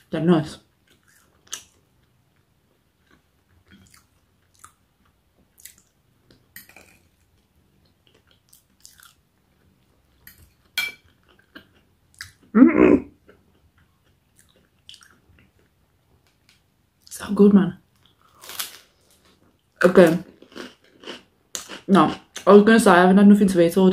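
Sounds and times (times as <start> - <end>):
crunchy food being chewed: 0.8 - 12.5, 13.2 - 15.8, 18.0 - 22.5.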